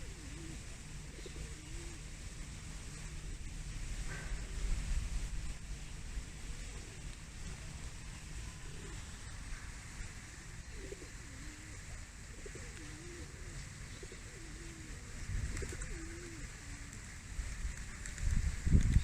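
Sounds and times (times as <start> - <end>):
pigeon cooing: 0.0 - 2.2, 6.5 - 7.2, 8.5 - 9.1, 10.6 - 17.0.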